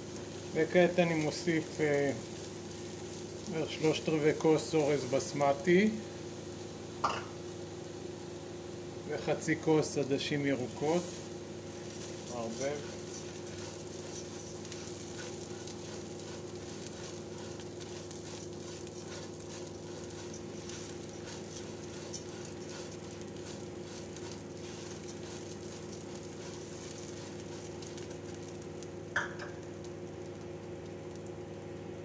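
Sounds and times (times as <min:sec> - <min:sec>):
food sizzling in hot oil: 0:00.0 - 0:32.0
steady low hum: 0:00.0 - 0:32.0
spatula scraping pot: 0:10.8 - 0:28.4.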